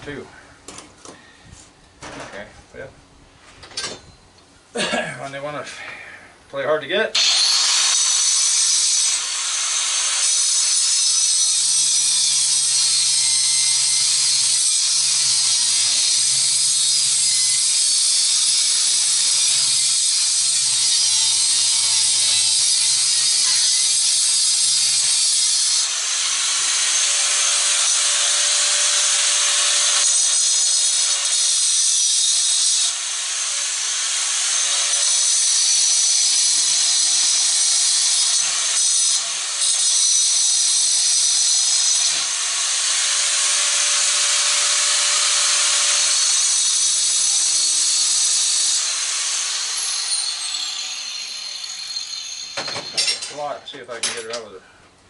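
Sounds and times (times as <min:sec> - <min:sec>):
power tool grinding metal: 0:07.2 - 0:54.5.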